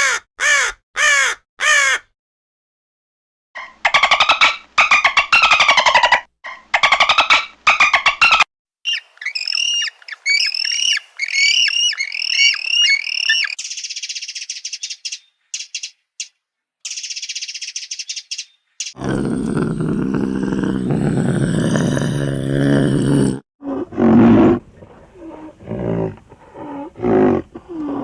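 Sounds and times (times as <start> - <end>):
bird-like calls dipping in pitch: 8.9 - 13.7
deep loud roar: 19.0 - 27.7.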